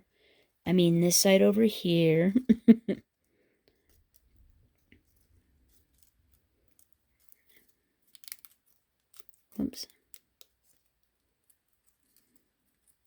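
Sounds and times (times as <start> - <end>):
small ticks: 3.6 - 13.0
paper clicks and rustles: 3.8 - 13.0.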